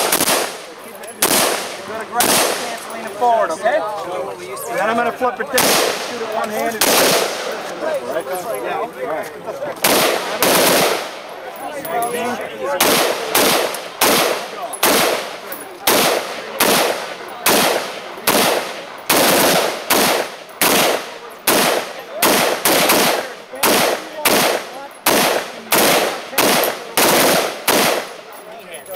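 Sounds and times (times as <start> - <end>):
gunshots: 0.0 - 3.0, 5.5 - 7.8, 9.8 - 11.4, 12.7 - 28.3.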